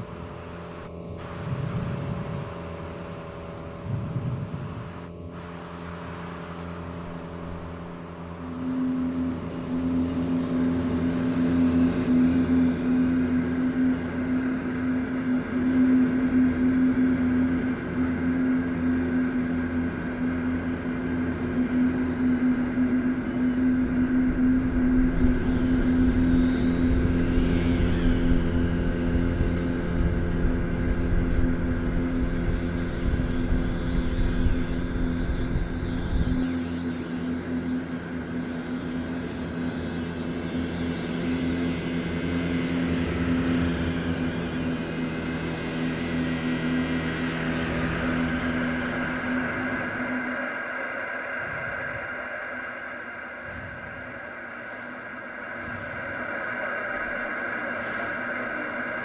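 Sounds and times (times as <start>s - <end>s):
low hum: 0.0s - 52.0s
rumbling noisy drone: 6.9s - 54.0s.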